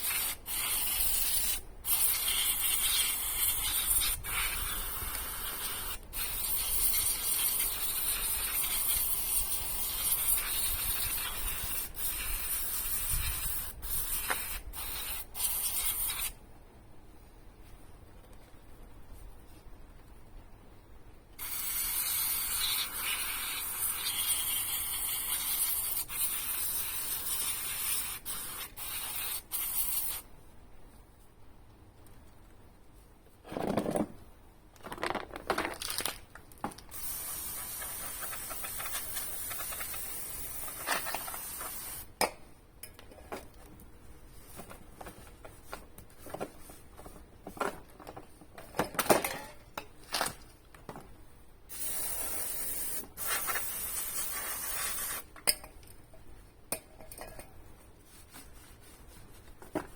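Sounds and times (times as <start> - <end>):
aerosol spray can hissing: 0.0 - 16.4, 21.4 - 30.2, 36.9 - 42.1, 51.7 - 55.3
handling knocks and rustling: 33.3 - 36.9, 42.9 - 51.2, 57.0 - 59.9.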